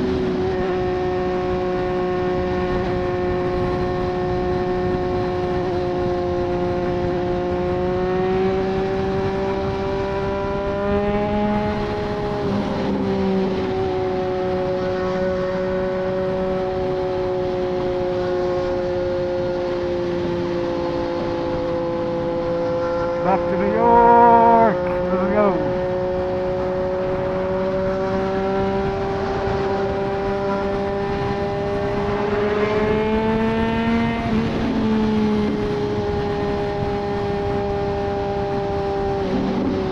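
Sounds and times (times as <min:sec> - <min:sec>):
wind noise: 0:00.0 - 0:15.1, 0:24.6 - 0:39.9
motorcycle engine cruising: 0:00.0 - 0:39.9.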